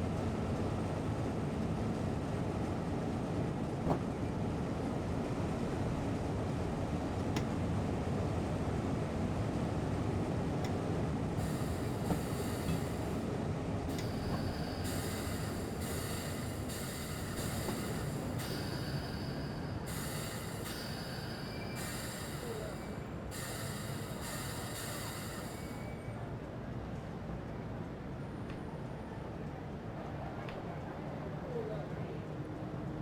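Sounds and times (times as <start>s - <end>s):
train rumble: 0.0s - 33.0s
hiss: 11.4s - 13.2s, 13.9s - 25.9s
train wheel squeal: 11.4s - 13.2s, 13.9s - 26.2s.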